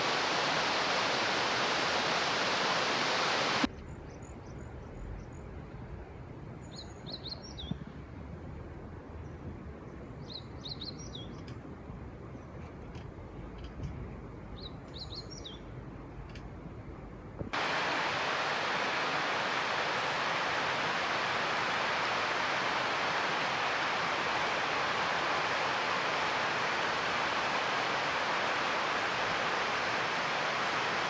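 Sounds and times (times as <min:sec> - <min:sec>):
rushing hiss: 0:00.0 - 0:03.7, 0:17.6 - 0:31.0
songbird chirping: 0:10.1 - 0:11.6, 0:14.5 - 0:15.7.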